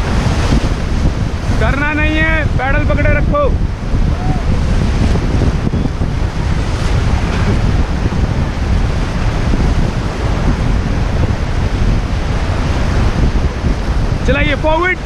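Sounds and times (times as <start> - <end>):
wind buffeting microphone: 0.0 - 15.0
river water rushing: 3.6 - 15.0.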